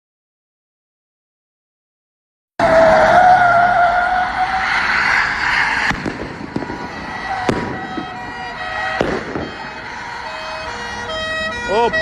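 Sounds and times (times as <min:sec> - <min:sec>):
car tyres squealing: 0:02.6 - 0:12.0.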